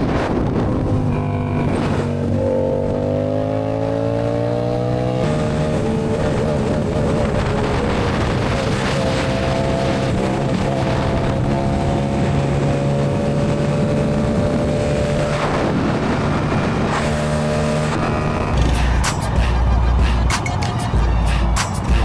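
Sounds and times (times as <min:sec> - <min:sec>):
heavy low rumble: 0:00.0 - 0:03.0, 0:18.0 - 0:22.0.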